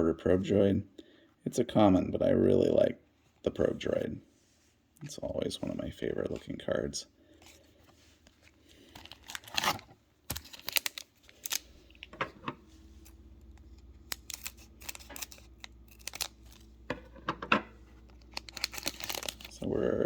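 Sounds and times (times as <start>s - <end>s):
foil wrapper tearing and crinkling: 8.7s - 12.1s, 13.0s - 16.7s, 18.0s - 19.7s.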